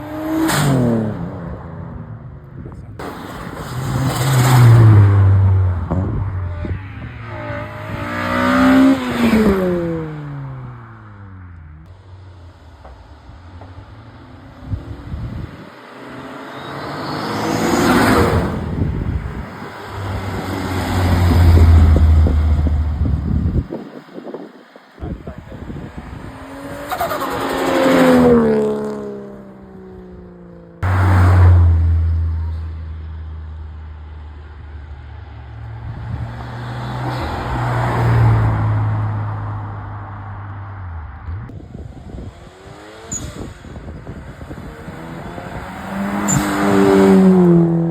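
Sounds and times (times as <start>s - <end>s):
car engine accelerating: 0.0s - 23.8s, 25.3s - 47.9s
deep engine rumble: 1.7s - 8.1s, 18.5s - 23.7s
car driving past: 26.1s - 34.2s.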